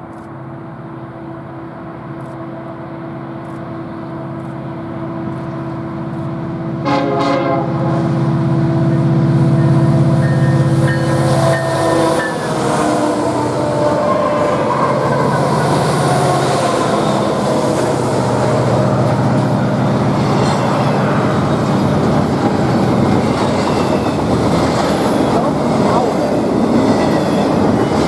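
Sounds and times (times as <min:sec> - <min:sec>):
train running: 0:00.0 - 0:28.0
train horn blast: 0:06.7 - 0:23.7
high squealing tones: 0:09.0 - 0:24.1.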